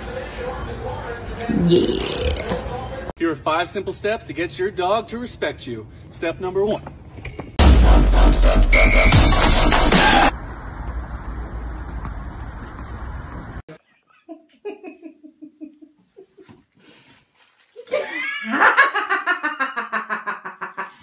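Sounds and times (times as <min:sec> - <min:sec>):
short falling vocal sounds: 0:01.4 - 0:02.8
hearty laughter: 0:14.1 - 0:16.6, 0:17.8 - 0:21.0.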